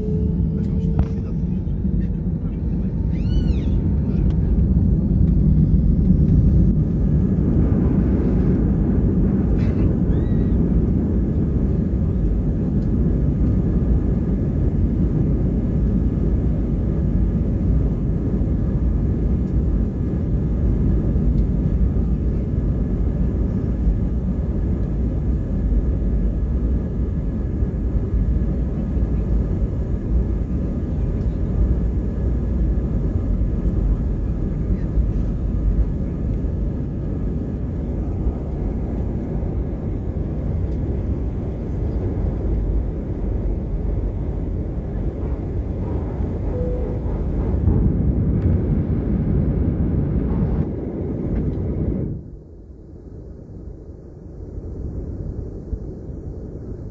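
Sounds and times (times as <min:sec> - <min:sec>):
jet engine roar in cabin: 0:00.0 - 0:56.9
faint steady tones: 0:30.3 - 0:48.6.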